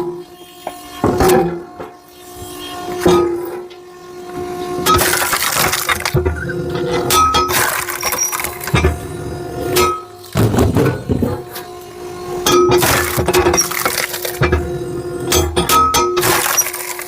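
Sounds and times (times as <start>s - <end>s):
steady low hum: 3.9s - 17.0s
firewood splitting cracks: 4.9s - 6.3s, 7.1s - 8.9s, 12.7s - 14.6s, 15.3s - 17.0s.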